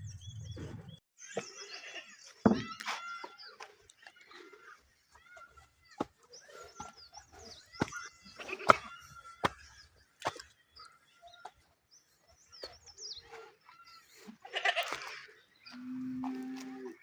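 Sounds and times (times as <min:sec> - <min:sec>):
small birds chirping: 0:00.0 - 0:17.0
livestock bleating: 0:14.4 - 0:15.1.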